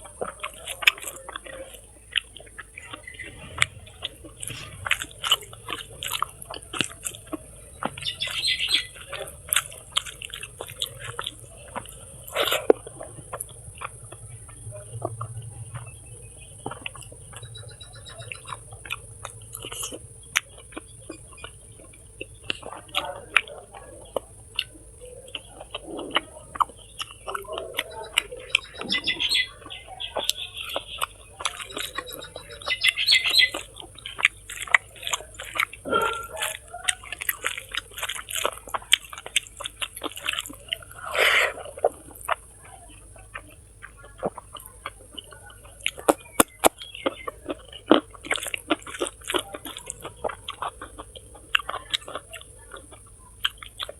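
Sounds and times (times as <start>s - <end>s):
chewing and lip-smacking: 0.0s - 53.9s
high-pitched calls: 7.1s - 9.3s, 15.8s - 19.1s, 27.2s - 33.8s.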